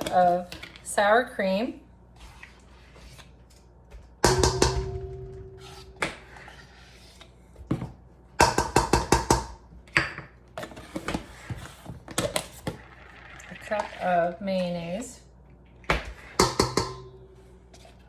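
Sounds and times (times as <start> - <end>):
spoon knocking against dishes: 16.4 - 17.2.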